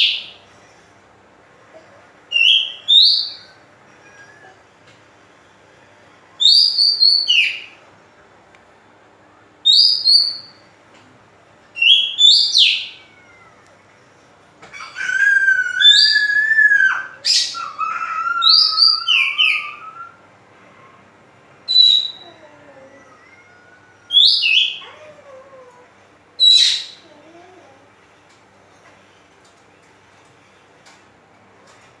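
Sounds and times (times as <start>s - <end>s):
bird singing whistled notes: 15.8s - 20.2s, 21.7s - 22.3s.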